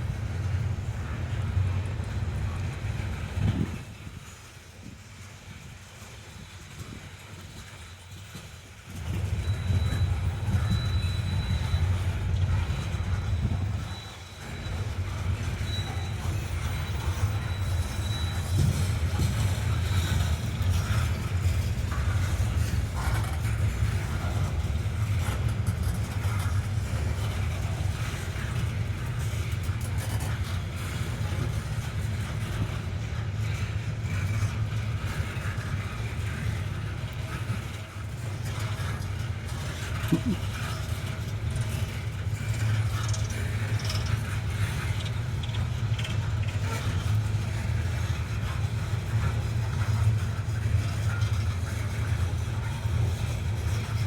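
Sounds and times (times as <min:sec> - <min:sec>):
low mechanical rumble: 0:00.0 - 0:04.3, 0:09.0 - 0:54.0.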